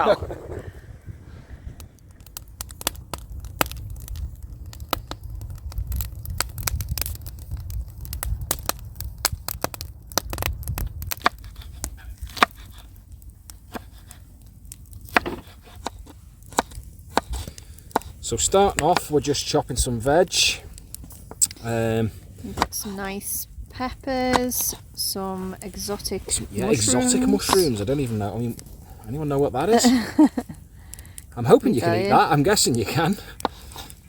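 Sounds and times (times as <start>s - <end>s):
steady low rumble: 0.0s - 12.3s
wood fire crackling and popping: 0.0s - 34.0s.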